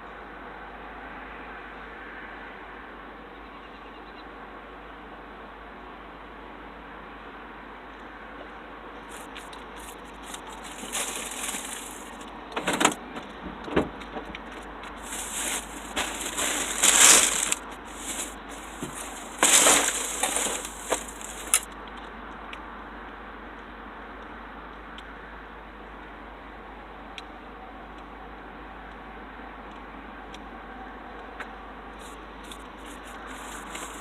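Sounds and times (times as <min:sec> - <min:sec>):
plastic bags rustling: 0:09.2 - 0:12.3, 0:15.0 - 0:21.7, 0:32.9 - 0:34.0.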